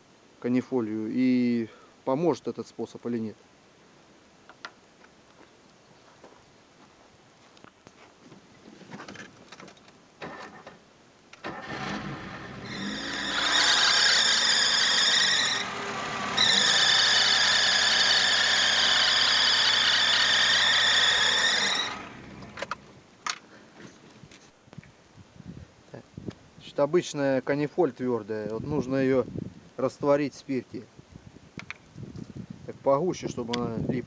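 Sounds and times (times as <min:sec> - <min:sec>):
car engine starting: 0:11.4 - 0:22.9
drive belt squealing: 0:11.6 - 0:22.4.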